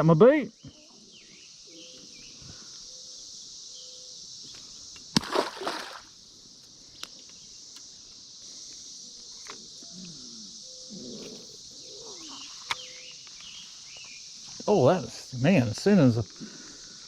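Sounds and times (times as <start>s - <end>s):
cicadas droning: 0.0s - 17.0s
small splash on water: 5.1s - 6.1s.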